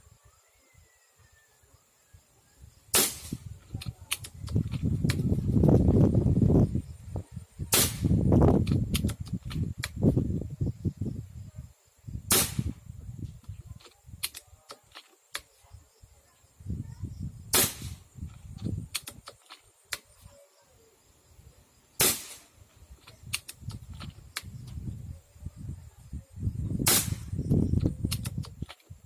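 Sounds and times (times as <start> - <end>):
gunshots: 2.9 - 3.4, 12.3 - 12.8, 22.0 - 22.5, 26.8 - 27.3
small clicks: 18.3 - 20.1, 23.0 - 24.8, 27.8 - 28.9.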